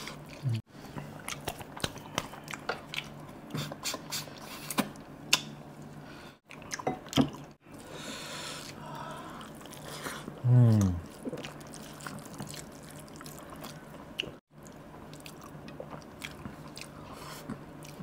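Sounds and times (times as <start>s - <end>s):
wet chewing and smacking: 0.0s - 5.6s, 11.0s - 18.0s.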